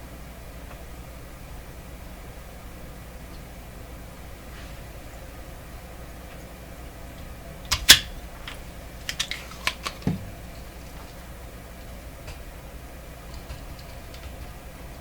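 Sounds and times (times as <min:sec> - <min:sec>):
low background hum: 0:00.0 - 0:15.0
dull knock: 0:10.1 - 0:10.4.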